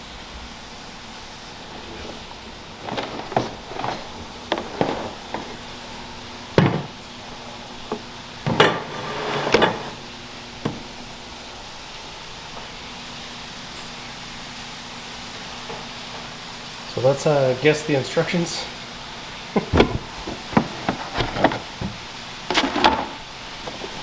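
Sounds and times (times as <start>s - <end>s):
packaging rustling: 1.4s - 8.5s, 19.4s - 24.0s
objects clicking and knocking: 1.7s - 7.1s, 19.6s - 24.0s.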